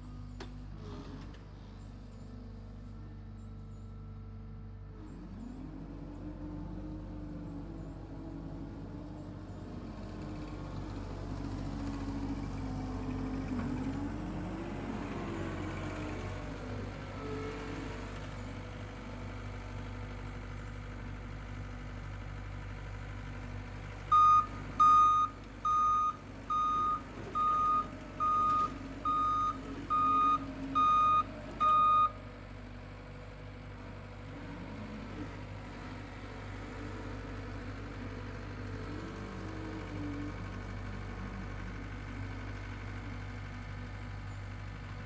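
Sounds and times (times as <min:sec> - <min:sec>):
backup alarm beeps: 0:24.1 - 0:32.2.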